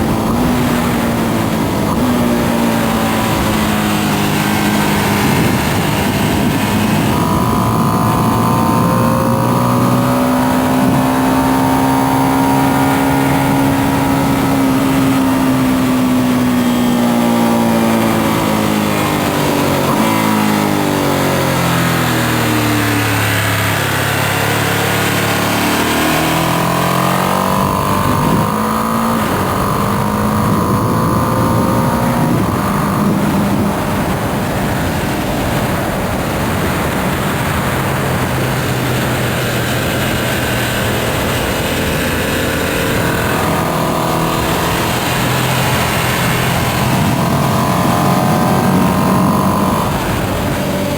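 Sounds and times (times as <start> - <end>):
wind rushing past: 0.0 - 16.7
motorcycle engine: 0.0 - 50.9.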